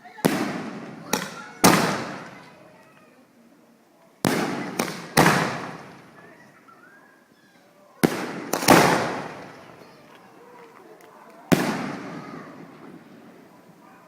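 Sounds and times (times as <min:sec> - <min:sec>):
fireworks bangs with echo: 0:00.1 - 0:02.6, 0:04.2 - 0:06.2, 0:08.0 - 0:10.0, 0:11.5 - 0:13.5.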